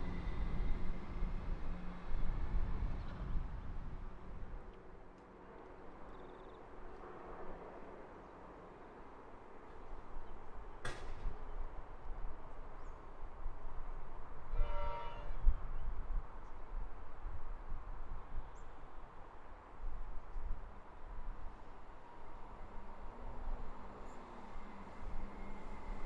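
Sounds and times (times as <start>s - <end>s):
electric train rumble: 0.0s - 4.7s, 21.5s - 26.0s.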